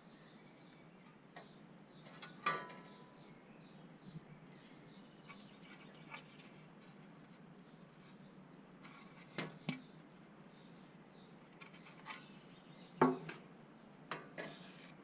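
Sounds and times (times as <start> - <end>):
faint scraping and rustling: 5.2 - 9.9, 10.6 - 12.8, 14.1 - 15.0.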